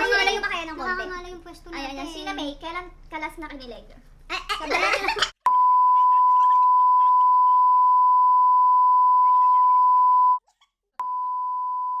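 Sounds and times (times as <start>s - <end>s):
censor bleep tone: 5.5s - 10.4s, 11.0s - 12.0s.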